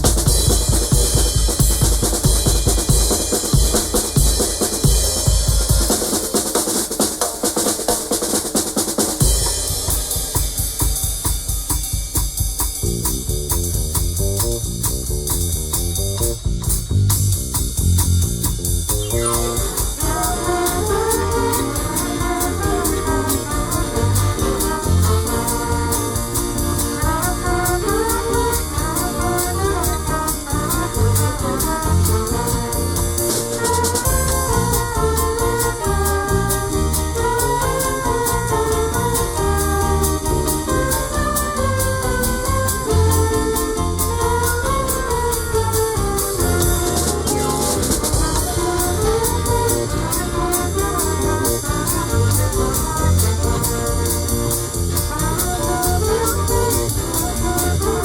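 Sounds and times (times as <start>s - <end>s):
cymbal beat: 0.0s - 58.0s
live band playing: 0.0s - 58.0s
melodic lead line: 18.9s - 58.0s.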